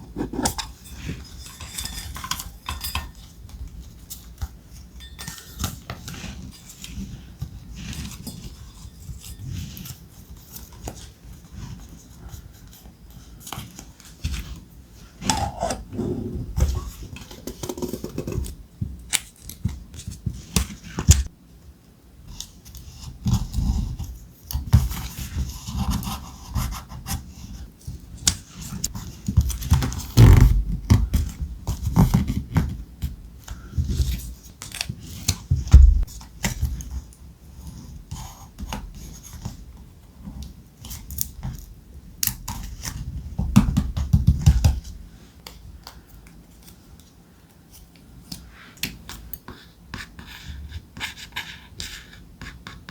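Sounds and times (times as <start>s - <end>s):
louder knocks: 35.7s - 36.1s.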